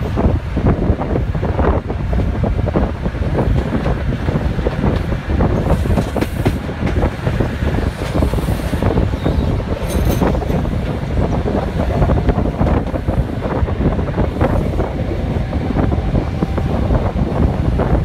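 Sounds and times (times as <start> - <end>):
air rushing past microphone: 0.0 - 18.0
diesel train running: 0.0 - 18.0
high wheel squeal: 8.4 - 10.3.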